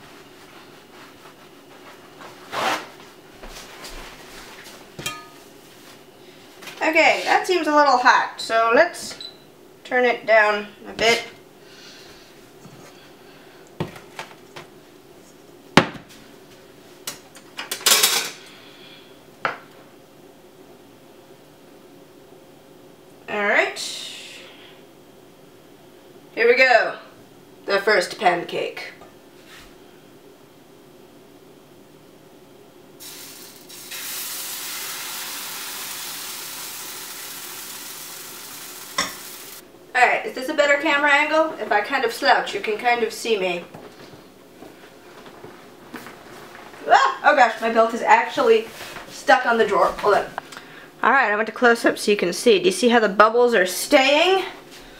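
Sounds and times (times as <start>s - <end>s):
batter sizzling in a frying pan: 33.0s - 39.6s.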